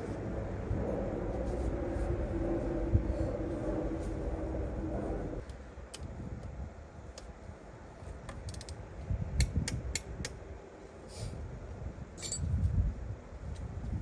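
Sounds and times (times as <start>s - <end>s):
metal tools clicking and clinking: 12.2s - 12.5s.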